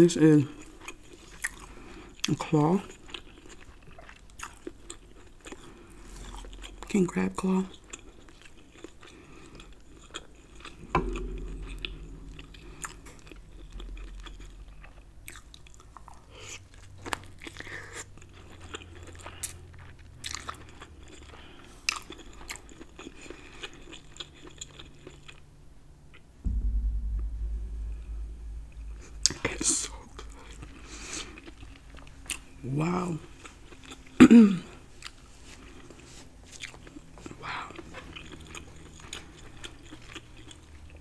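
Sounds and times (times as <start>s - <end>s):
close chewing and biting: 0.3s - 11.6s, 15.3s - 25.4s, 32.3s - 41.0s
low rumble: 10.6s - 16.9s, 26.4s - 32.4s.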